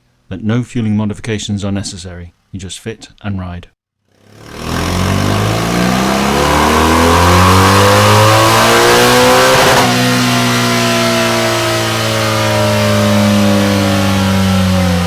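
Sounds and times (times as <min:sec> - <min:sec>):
motorcycle engine revving: 0:04.1 - 0:15.0.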